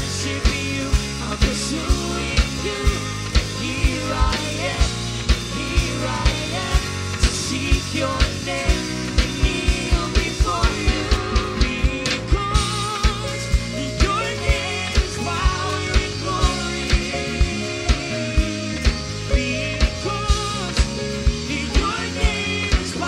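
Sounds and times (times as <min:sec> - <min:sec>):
worship band playing rock: 0:00.0 - 0:23.0.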